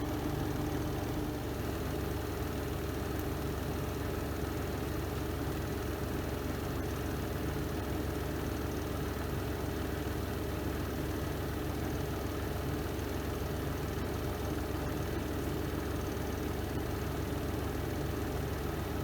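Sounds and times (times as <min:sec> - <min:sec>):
washing machine spinning: 0:00.0 - 0:03.0.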